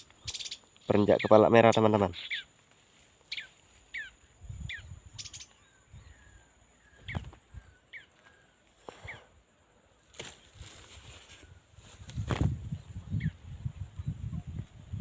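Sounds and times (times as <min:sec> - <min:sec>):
small bird chirping: 0:00.0 - 0:09.3.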